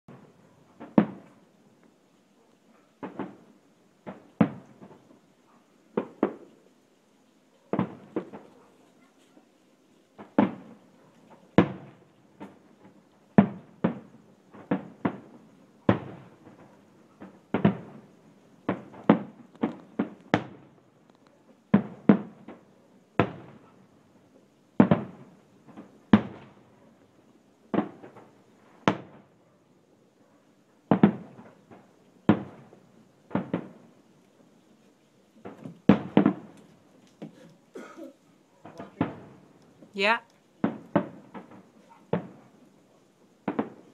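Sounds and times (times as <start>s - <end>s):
fireworks bangs: 0.1s - 1.4s, 3.0s - 5.2s, 5.9s - 6.6s, 7.7s - 8.7s, 10.2s - 20.8s, 21.7s - 23.8s, 24.8s - 26.7s, 27.7s - 29.4s, 30.9s - 34.0s, 35.4s - 37.9s, 38.6s - 42.6s, 43.4s - 43.9s.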